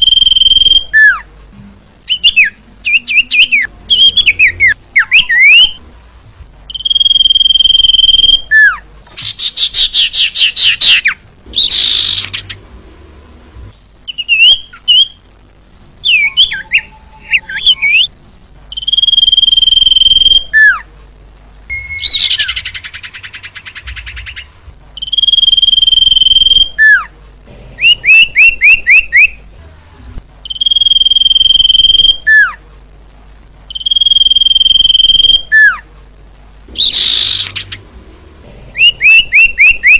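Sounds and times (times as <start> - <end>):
bird high whistle: 0.0 - 1.2, 6.7 - 8.8, 18.7 - 20.8, 21.7 - 22.6, 25.0 - 27.0, 30.5 - 32.6, 33.7 - 35.8
bird trills and chattering: 6.7 - 12.6, 36.8 - 37.8.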